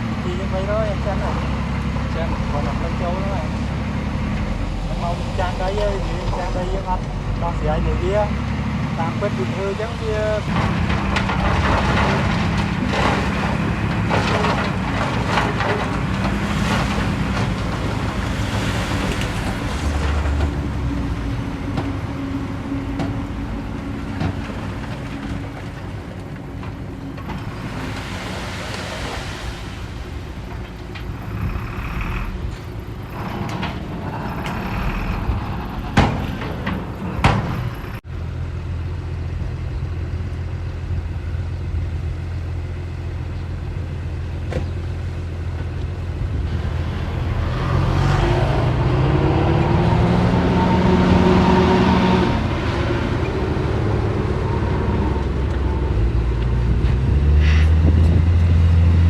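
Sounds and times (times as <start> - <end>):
diesel earthmoving machine running: 0.0 - 59.0.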